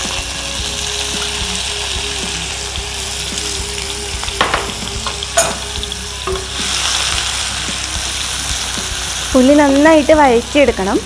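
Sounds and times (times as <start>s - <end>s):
shallots sizzling in oil: 0.0s - 11.0s.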